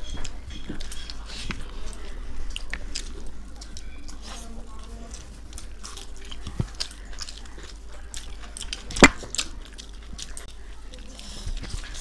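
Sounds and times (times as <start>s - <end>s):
person biting and chewing food: 5.1s - 10.5s.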